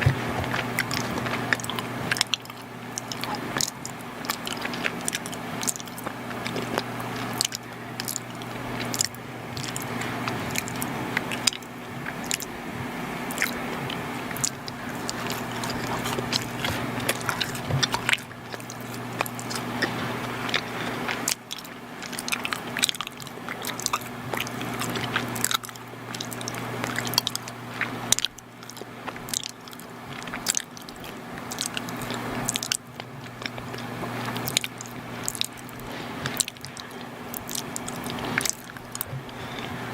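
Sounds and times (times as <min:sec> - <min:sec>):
close chewing mouth sounds: 0:00.0 - 0:39.9
steady low hum: 0:00.0 - 0:39.9.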